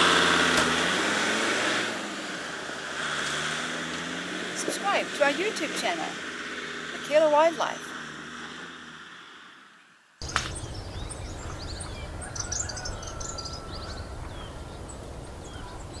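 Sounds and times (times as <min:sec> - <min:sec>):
small birds chirping and trilling: 0:10.2 - 0:16.0.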